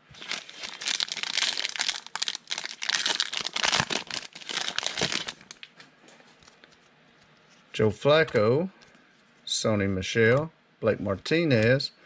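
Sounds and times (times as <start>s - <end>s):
card pack wrapper crinkling: 0.0s - 5.7s.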